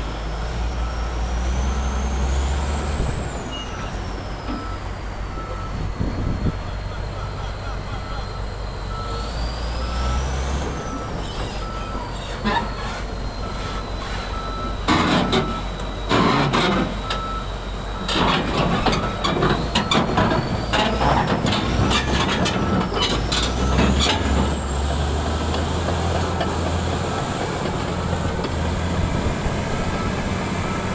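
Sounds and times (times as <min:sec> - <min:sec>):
bulldozer diesel engine running: 0:00.0 - 0:30.9
reversing alarm beeping: 0:03.3 - 0:21.2, 0:21.8 - 0:24.8, 0:29.5 - 0:30.9.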